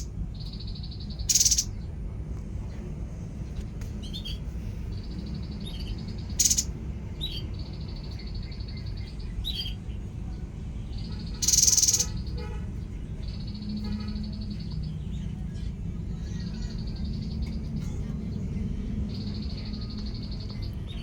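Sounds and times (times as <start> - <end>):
steady low rumble: 0.0 - 11.0
songbird chirping and trilling: 0.0 - 21.0
harsh buzzy bird bursts: 1.2 - 1.7, 6.3 - 6.7, 11.3 - 12.3.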